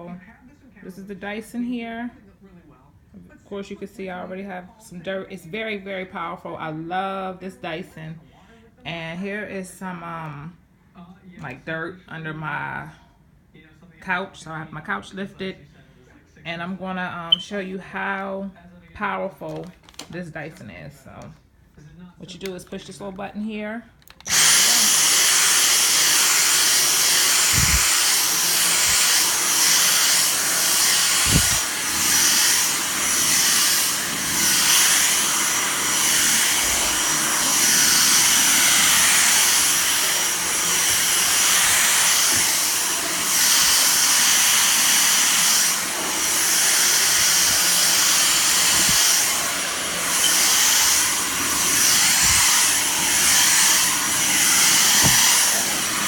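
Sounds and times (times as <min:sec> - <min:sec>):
vacuum cleaner running: 0:24.3 - 0:56.0.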